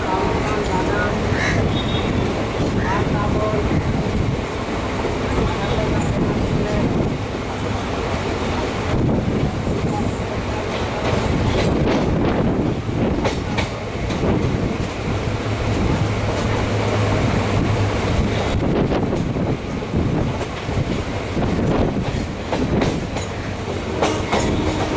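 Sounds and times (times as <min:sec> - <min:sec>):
train rumble: 0:00.0 - 0:24.9
wheels clicking over rail joints: 0:20.3 - 0:24.9.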